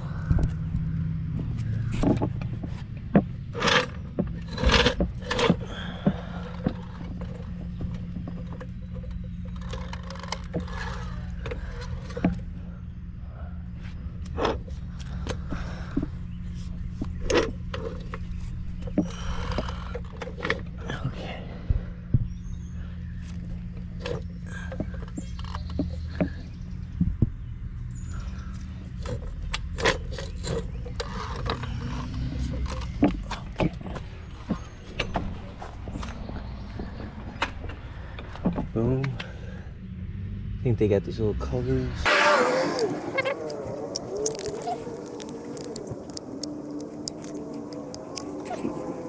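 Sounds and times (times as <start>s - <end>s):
vehicle engine running: 0.0s - 49.0s
hand tools clicking and clanking: 42.1s - 49.0s.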